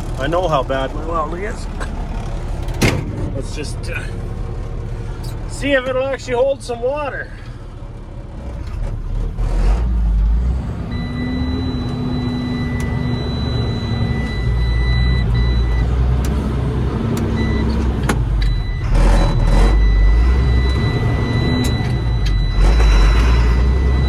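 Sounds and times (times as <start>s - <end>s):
truck engine running: 0.0s - 24.0s.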